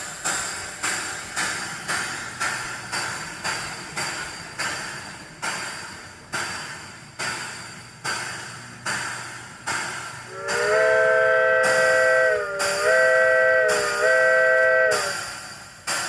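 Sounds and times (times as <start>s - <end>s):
locomotive bell ringing: 10.3s - 15.4s.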